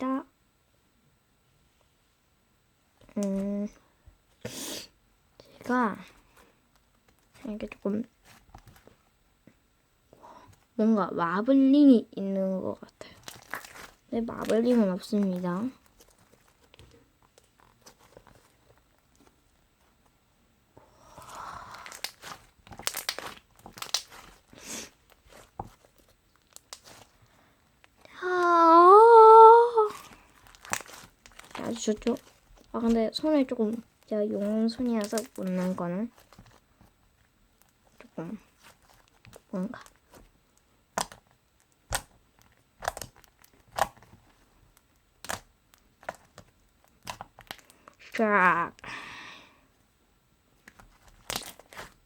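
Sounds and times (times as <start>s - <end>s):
slime squishing and popping: 13.2s - 18.5s, 21.6s - 27.2s, 29.9s - 36.6s, 40.9s - 47.7s, 50.6s - 52.0s
slime sticky clicks and pops: 21.9s - 24.4s, 40.9s - 41.2s, 41.8s - 42.2s, 42.8s - 44.0s
person humming: 28.2s - 30.0s.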